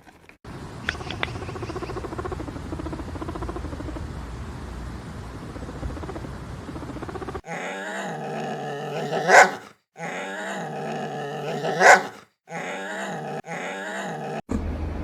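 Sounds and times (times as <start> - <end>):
animal call sweeping upward: 7.5 - 14.4.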